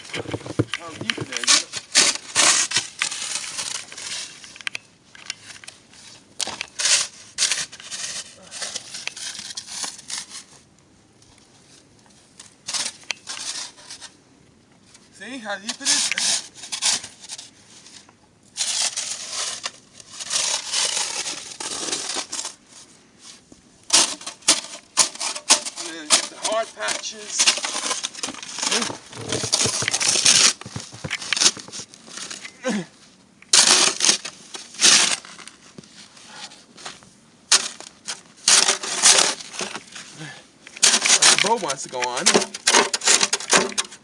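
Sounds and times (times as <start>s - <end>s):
snow shovel scraping snow: 24.0s - 32.3s, 38.5s - 40.1s.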